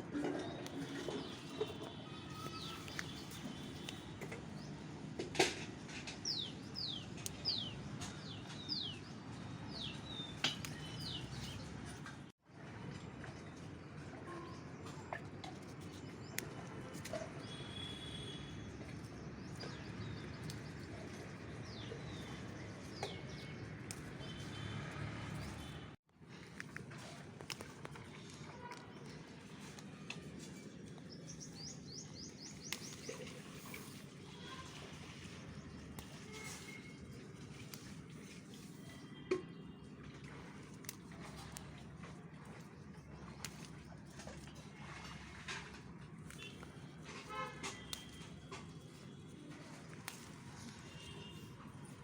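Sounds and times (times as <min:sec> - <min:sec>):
small birds chirping: 0:00.5 - 0:04.7, 0:06.2 - 0:11.8, 0:27.5 - 0:40.2.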